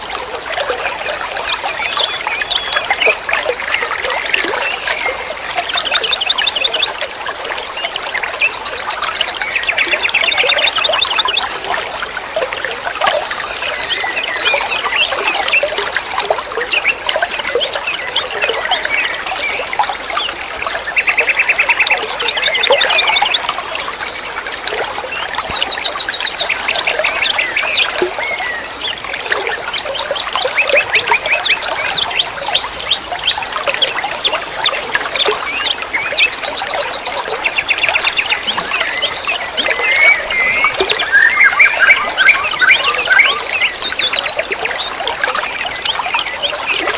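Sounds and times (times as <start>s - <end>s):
songbird singing: 0.0s - 23.6s, 24.8s - 46.9s.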